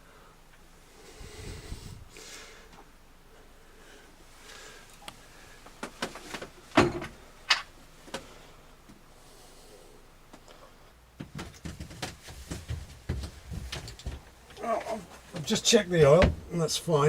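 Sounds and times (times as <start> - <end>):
light bumps and rattles: 11.1 - 17.0.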